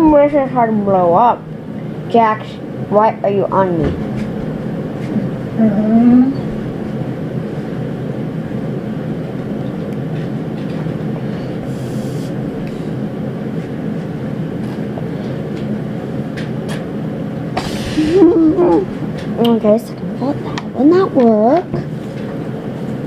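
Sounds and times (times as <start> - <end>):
steady rumbling noise: 0.0 - 23.0
faint low hum: 17.0 - 23.0.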